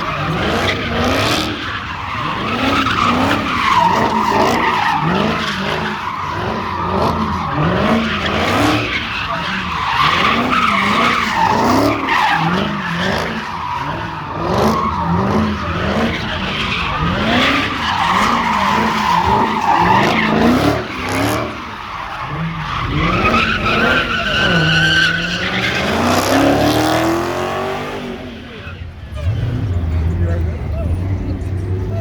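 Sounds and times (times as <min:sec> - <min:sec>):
car engine revving: 0:00.0 - 0:32.0
tyres screeching: 0:00.0 - 0:32.0.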